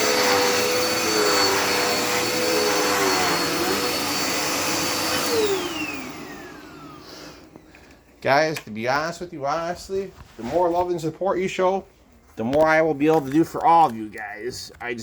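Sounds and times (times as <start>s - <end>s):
vacuum cleaner motor whine: 0.0s - 8.1s.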